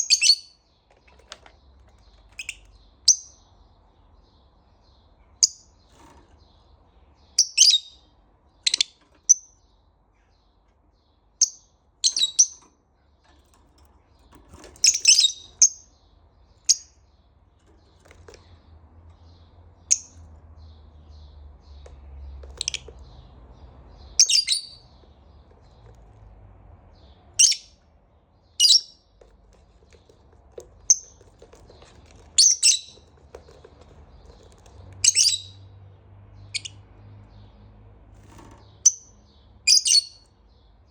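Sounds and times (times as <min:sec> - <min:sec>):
lovebird chirping: 0:00.0 - 0:00.6, 0:02.1 - 0:03.5, 0:07.2 - 0:08.0, 0:08.6 - 0:09.6, 0:11.4 - 0:12.7, 0:14.8 - 0:17.1, 0:19.3 - 0:20.2, 0:24.0 - 0:24.9, 0:27.4 - 0:27.8, 0:28.4 - 0:29.1, 0:30.8 - 0:31.2, 0:31.8 - 0:33.6, 0:35.0 - 0:35.8, 0:36.4 - 0:36.8, 0:38.7 - 0:40.3.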